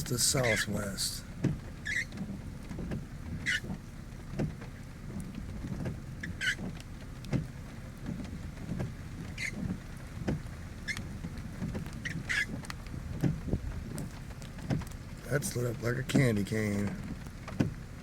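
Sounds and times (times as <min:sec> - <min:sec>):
low rumble on microphone: 0:00.0 - 0:18.0.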